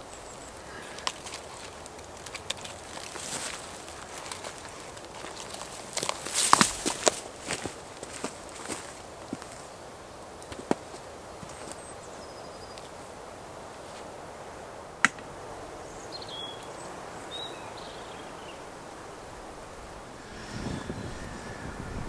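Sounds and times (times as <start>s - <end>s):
steady background hush: 0.0s - 22.0s
faint high chirps: 20.1s - 22.0s.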